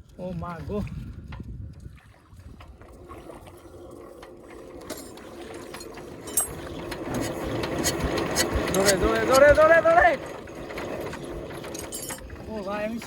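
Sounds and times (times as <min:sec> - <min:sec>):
diesel engine hand cranked: 0:04.8 - 0:13.0.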